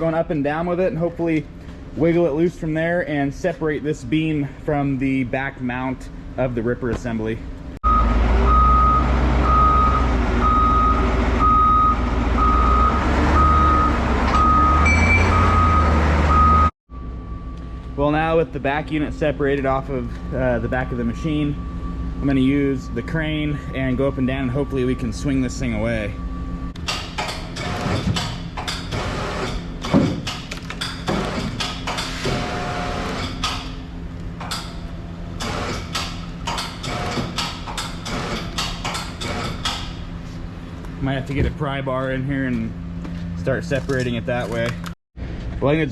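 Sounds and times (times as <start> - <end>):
diesel engine running: 6.0 - 26.9, 39.6 - 45.9
back-up alarm beeping: 7.8 - 18.3, 20.0 - 26.8
high steady whine: 16.9 - 26.8.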